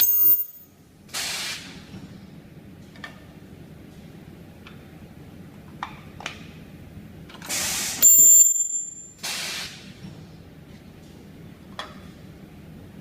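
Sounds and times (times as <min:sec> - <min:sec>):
air hiss: 0:01.1 - 0:01.8, 0:07.5 - 0:08.0, 0:09.2 - 0:09.9.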